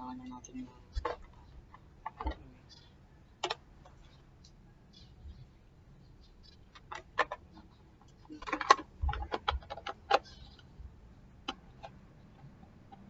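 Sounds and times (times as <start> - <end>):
fan parts clicking and knocking: 0.9 - 2.8, 3.4 - 4.6, 6.4 - 13.0.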